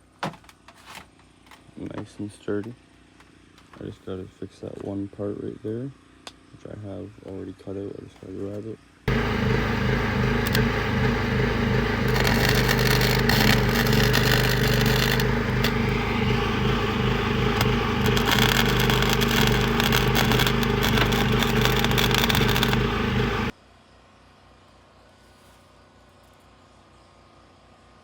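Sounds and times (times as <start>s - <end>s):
faint hum: 9.1s - 23.5s
generator engine running: 9.1s - 23.5s
metalwork scraping and crackling: 11.8s - 23.5s.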